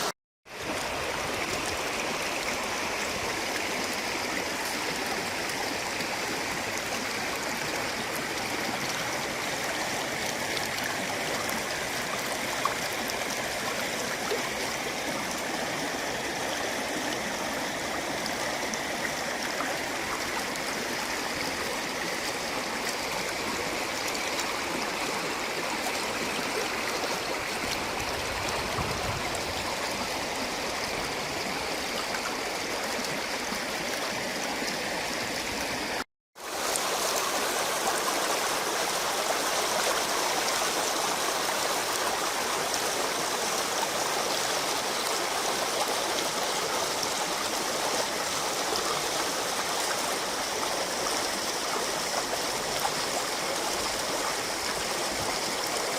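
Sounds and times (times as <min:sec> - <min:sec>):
river water rushing: 0:00.0 - 0:55.9.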